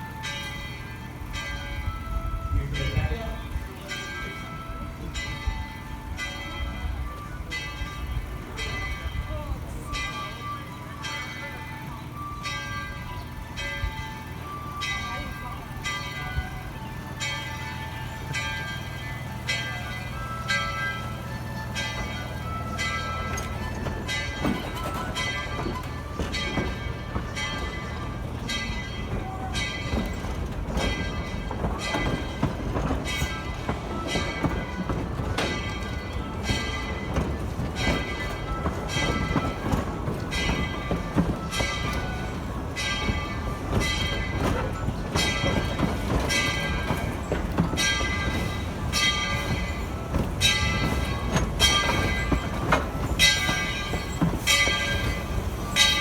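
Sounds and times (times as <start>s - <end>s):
locomotive bell ringing: 0.0s - 56.0s
train rumbling: 0.0s - 56.0s.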